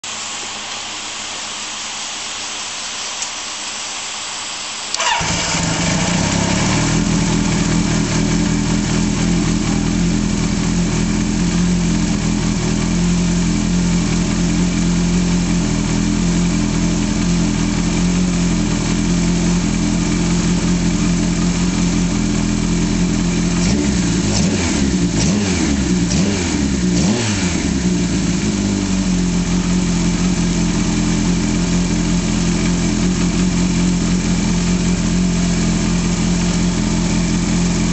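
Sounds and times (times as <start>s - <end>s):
starter motor whirring: 4.9s - 7.8s
motorcycle engine running: 5.0s - 37.9s.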